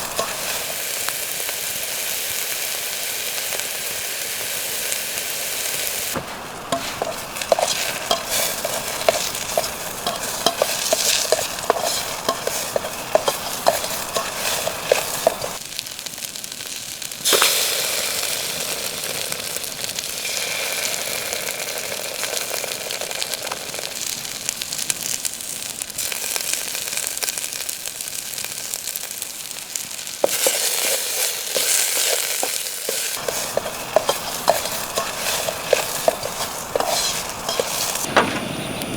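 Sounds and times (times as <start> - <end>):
spatula scraping a pan: 0.0 - 0.8, 6.2 - 15.6, 30.2 - 38.1
food sizzling in a frying pan: 0.0 - 38.8.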